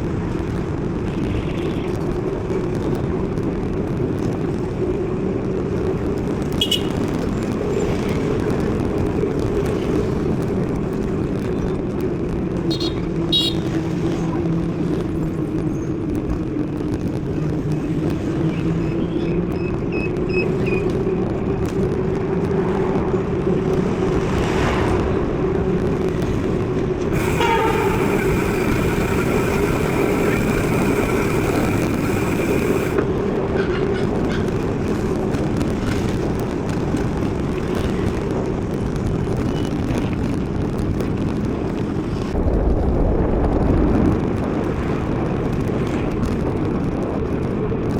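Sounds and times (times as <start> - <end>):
bike tyre rumble: 0.0 - 47.9
wind on microphone: 0.0 - 47.9
high-pitched squeal: 27.2 - 33.0.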